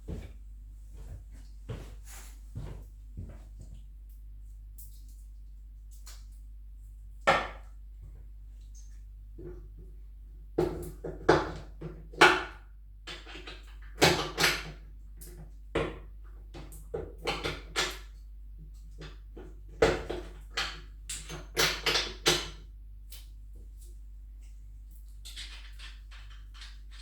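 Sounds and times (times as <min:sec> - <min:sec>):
steady low hum: 0:00.0 - 0:10.5
tools and parts clicking and knocking: 0:13.1 - 0:15.5, 0:18.9 - 0:23.3, 0:25.0 - 0:27.0.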